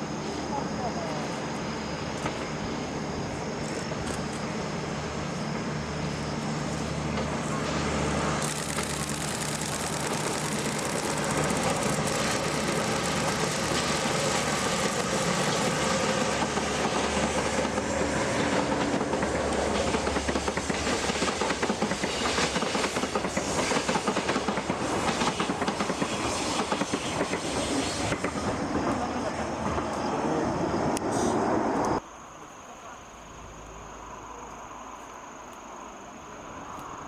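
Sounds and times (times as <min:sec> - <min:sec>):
locomotive engine drone: 0:00.0 - 0:20.6
freight wagons clattering on rails: 0:08.4 - 0:17.0.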